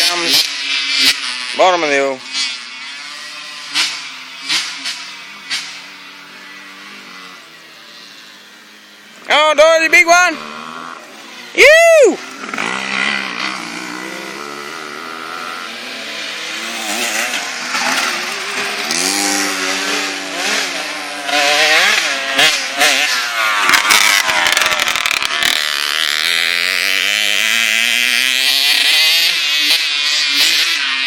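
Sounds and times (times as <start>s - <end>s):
dirt bike engines revving: 0.0s - 31.0s
sharp crackles: 23.4s - 25.6s.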